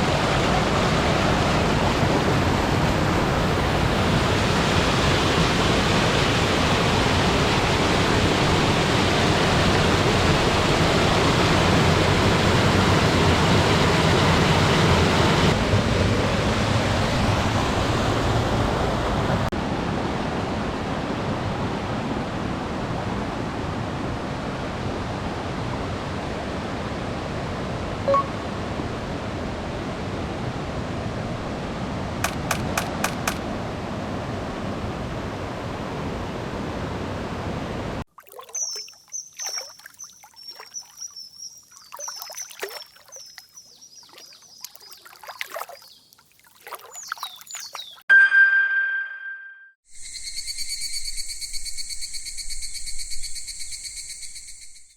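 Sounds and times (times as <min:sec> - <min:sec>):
short tone: 0:28.1 - 0:28.4, 0:48.1 - 0:49.8
sharp clicks: 0:32.2 - 0:33.4.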